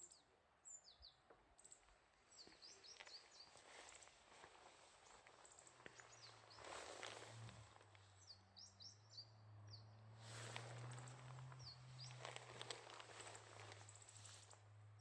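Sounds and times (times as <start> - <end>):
soft rustling: 2.4 - 8.2, 10.2 - 14.7.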